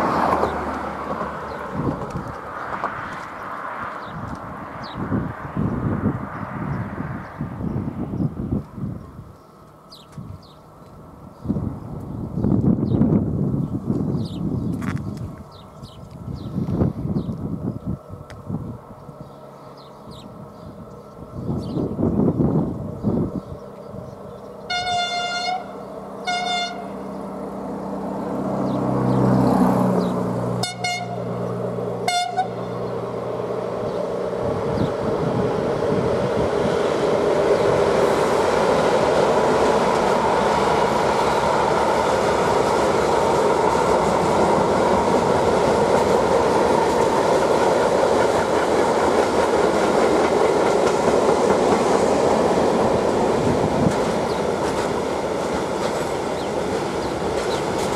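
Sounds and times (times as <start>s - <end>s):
locomotive engine hum: 0.0s - 57.9s
train wagons rumbling and clattering: 0.0s - 57.9s
train horn toots: 24.7s - 27.0s, 30.6s - 31.4s, 32.0s - 32.9s.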